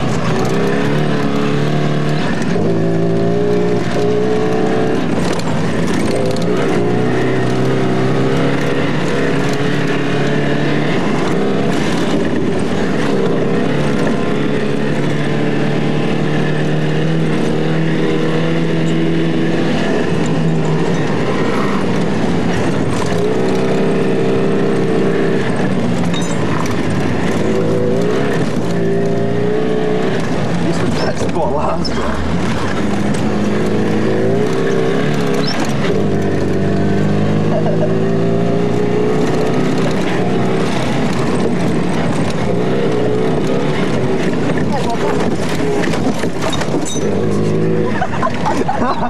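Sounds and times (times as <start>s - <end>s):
car engine running hard: 0.0s - 49.0s
road and wind noise: 0.0s - 49.0s.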